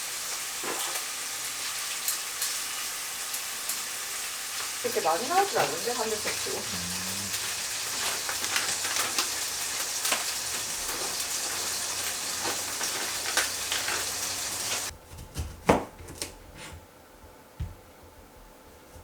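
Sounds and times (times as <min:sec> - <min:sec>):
food sizzling in a pan: 0:00.0 - 0:14.9.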